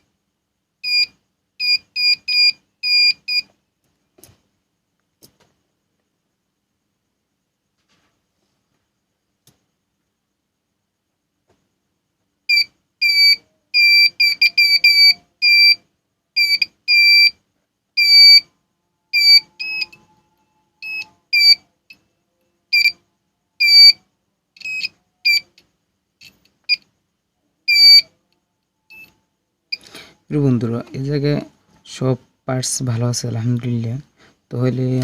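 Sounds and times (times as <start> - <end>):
multimeter continuity beeps: 0.8 - 3.5, 12.5 - 15.8, 16.4 - 17.4, 18.0 - 18.5, 19.1 - 22.0, 22.7 - 23.0, 23.6 - 24.0, 24.6 - 25.6, 27.7 - 28.1, 28.9 - 31.2.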